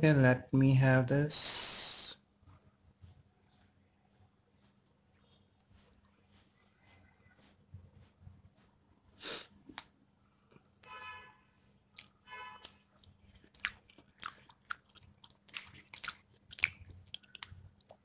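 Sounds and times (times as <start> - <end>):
wet crunchy chewing of fruit: 11.9 - 18.0.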